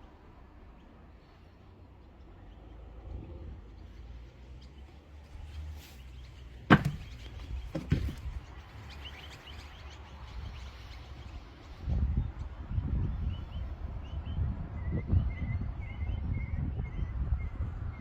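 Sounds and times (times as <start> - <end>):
sharp knocks: 6.7 - 8.2.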